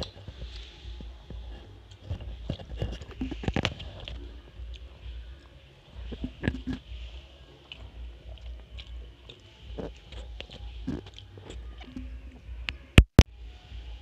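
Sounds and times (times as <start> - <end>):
chewing and wet mouth clicks: 1.8 - 12.8.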